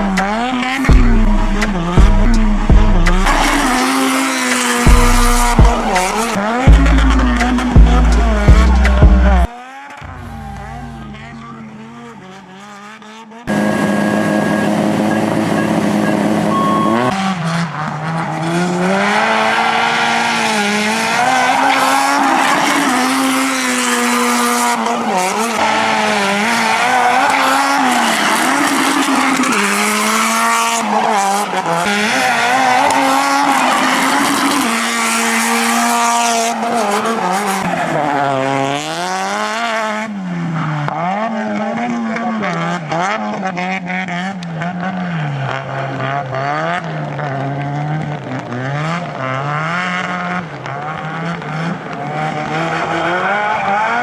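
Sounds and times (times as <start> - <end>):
car engine revving: 0.0 - 54.0
tyres sliding on wet road: 13.5 - 41.7, 45.2 - 54.0.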